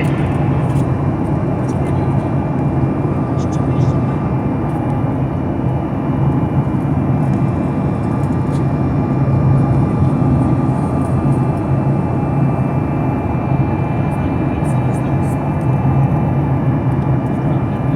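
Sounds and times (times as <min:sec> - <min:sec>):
airliner cabin drone: 0:00.0 - 0:17.9.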